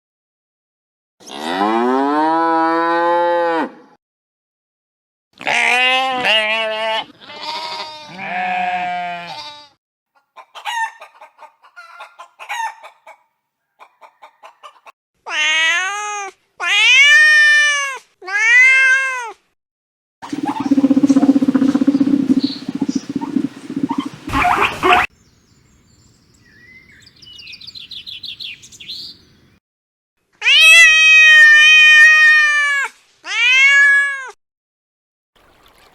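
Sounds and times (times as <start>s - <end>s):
chicken clucks: 20.2s - 25.1s
rough noisy animal call: 20.2s - 25.1s
wavering animal call: 20.2s - 25.1s.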